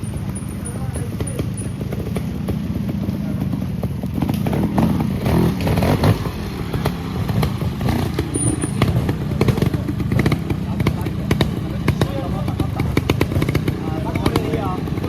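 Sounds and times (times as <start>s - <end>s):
motorcycle engine throttle blips: 0.0s - 15.0s.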